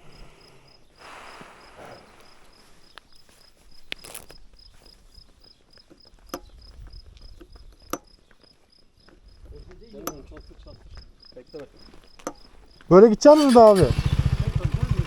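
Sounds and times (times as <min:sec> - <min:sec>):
cricket chirping: 0:00.0 - 0:15.0
sharp clicks: 0:12.1 - 0:14.6.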